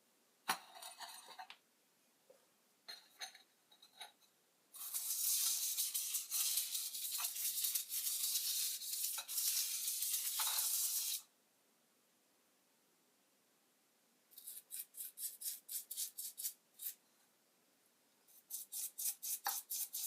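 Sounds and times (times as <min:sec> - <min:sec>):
scratchy hissing noise: 0:04.8 - 0:11.3, 0:14.4 - 0:17.1, 0:18.2 - 0:20.0.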